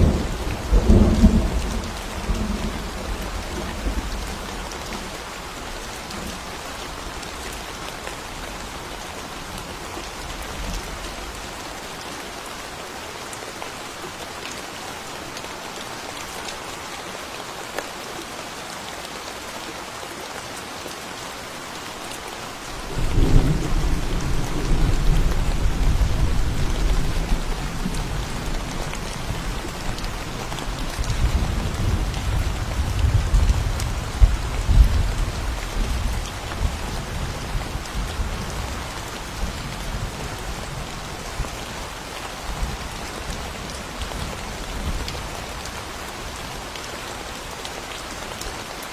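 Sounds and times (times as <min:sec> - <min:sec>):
thunder rumbling: 0:00.0 - 0:04.4, 0:22.8 - 0:36.9
steady rain hiss: 0:00.0 - 0:48.9.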